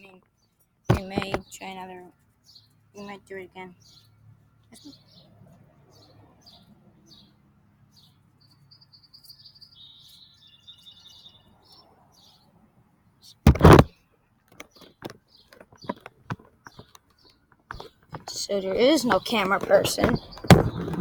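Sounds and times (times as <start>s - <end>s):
bird chirping: 0.0s - 12.6s, 14.6s - 21.0s
loud thump: 0.9s - 1.4s, 13.5s - 13.9s.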